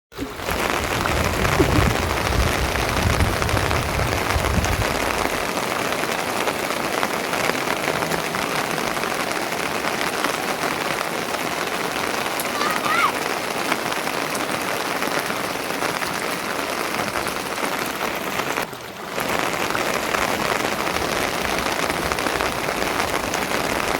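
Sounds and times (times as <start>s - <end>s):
steady rain falling: 0.1s - 23.9s
low rumble: 0.7s - 5.4s.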